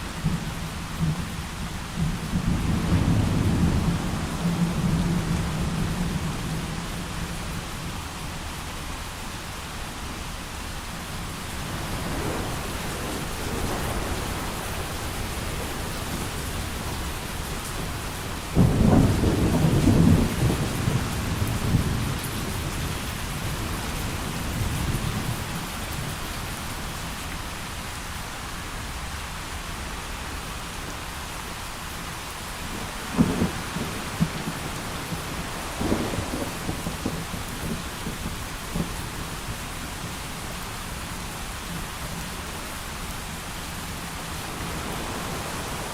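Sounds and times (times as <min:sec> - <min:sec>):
steady rain: 0:00.0 - 0:45.9
thunder rumbling: 0:11.5 - 0:26.2, 0:32.7 - 0:39.3
thunderclap: 0:33.1 - 0:39.0.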